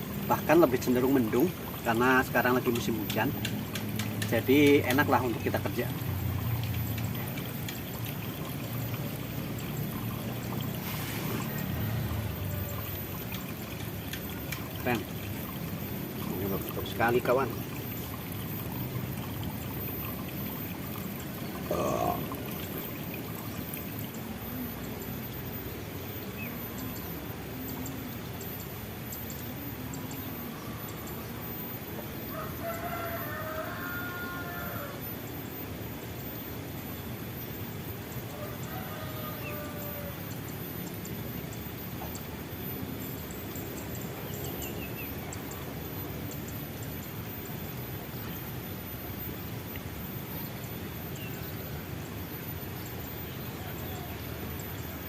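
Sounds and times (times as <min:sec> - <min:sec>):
running water rushing: 0:00.0 - 0:30.5
outdoor background hiss: 0:00.0 - 0:55.0
rooster crowing: 0:32.3 - 0:35.1, 0:38.3 - 0:40.3, 0:53.6 - 0:54.6.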